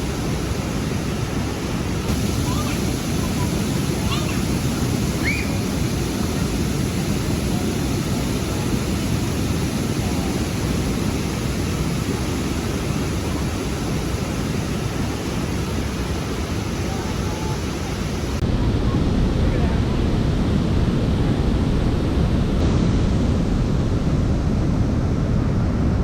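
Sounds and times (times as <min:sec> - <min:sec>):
river water rushing: 0:00.0 - 0:18.4.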